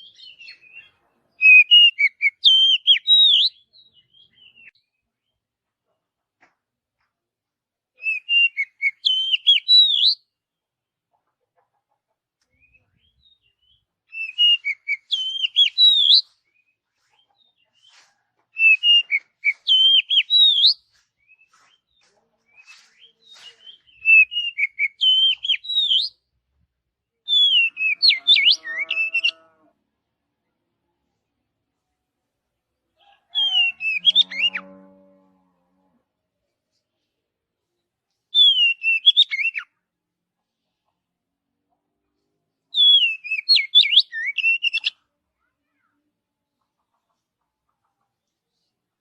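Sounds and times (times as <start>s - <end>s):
bird singing whistled notes: 0.0s - 4.9s, 8.0s - 10.3s, 12.6s - 16.8s, 18.6s - 21.5s, 22.6s - 26.2s, 27.3s - 29.4s, 38.4s - 39.7s, 42.8s - 45.0s.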